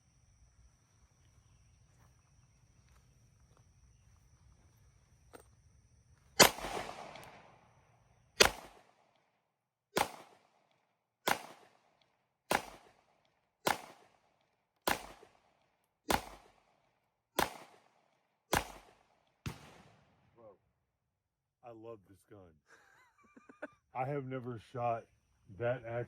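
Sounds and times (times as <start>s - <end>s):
pistol shots with echo: 6.4s - 7.7s, 8.4s - 9.2s, 10.0s - 16.7s, 17.4s - 20.2s.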